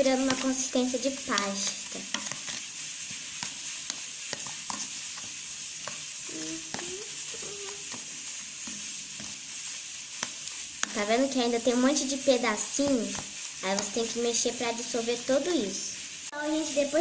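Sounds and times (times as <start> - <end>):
wet paste stirring hiss: 0.0 - 17.0
stirrer clicking against bowl: 0.2 - 0.6.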